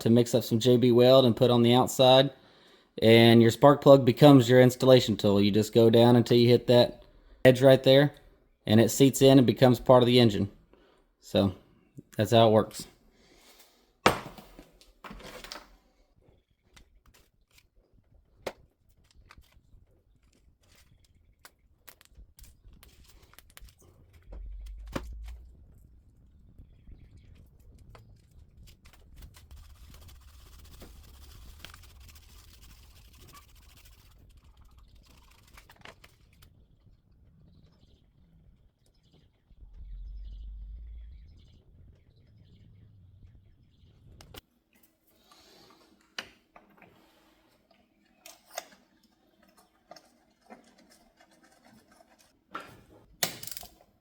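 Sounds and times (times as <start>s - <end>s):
short low rumbles: 24.1s - 27.2s, 39.5s - 44.2s
clicks and knocks of tools: 47.7s - 49.2s, 52.5s - 53.9s.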